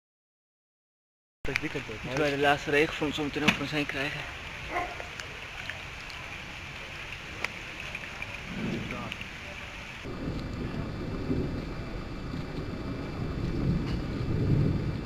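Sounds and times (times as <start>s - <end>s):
rain falling: 1.5s - 15.0s
raindrop ticks: 1.5s - 15.0s
wind buffeting microphone: 8.2s - 9.4s, 10.0s - 15.0s.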